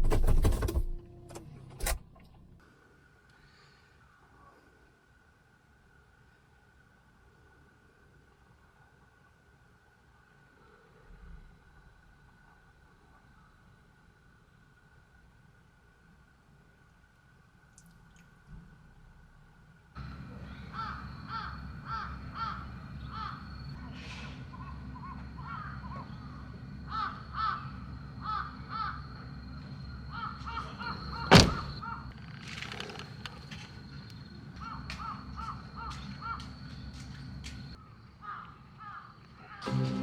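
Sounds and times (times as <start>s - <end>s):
crows cawing: 20.0s - 23.7s, 24.6s - 29.2s, 30.1s - 32.1s, 34.6s - 36.9s, 38.2s - 39.6s.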